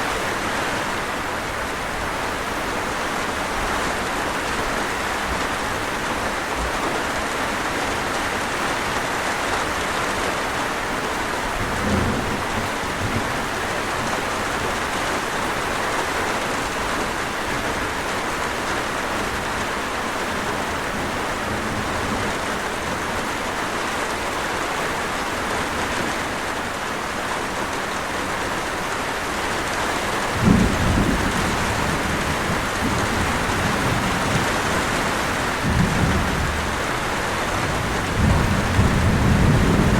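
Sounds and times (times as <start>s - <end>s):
steady rain: 0.0s - 39.9s
thunder rumbling: 11.5s - 14.8s, 30.3s - 39.9s.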